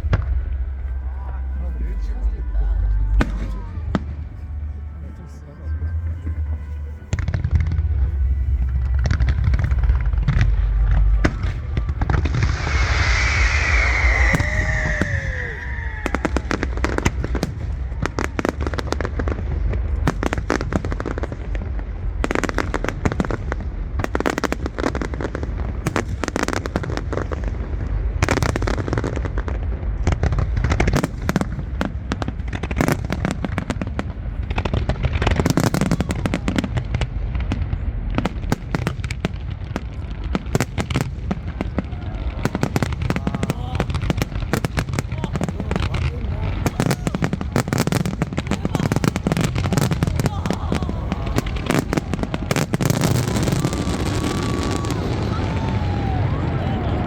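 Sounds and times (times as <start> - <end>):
deep booming rumble: 0.0 - 57.0
fireworks bangs and crackles: 0.0 - 57.0
high falling whistle: 11.6 - 16.6.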